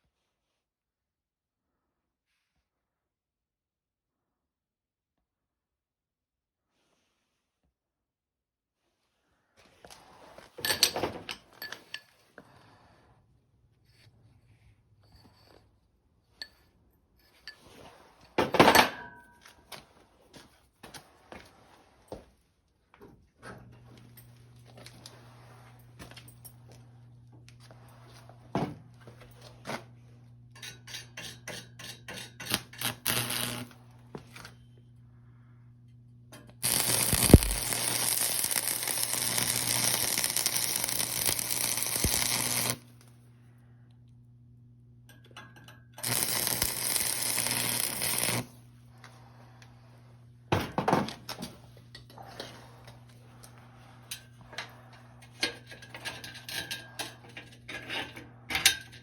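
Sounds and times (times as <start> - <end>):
low steady hum: 32.4 - 59.0
tool rushing noise: 36.6 - 42.8.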